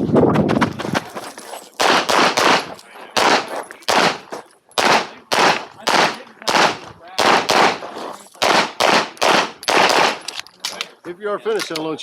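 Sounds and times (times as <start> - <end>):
handgun shots: 1.8 - 7.8, 8.4 - 10.3.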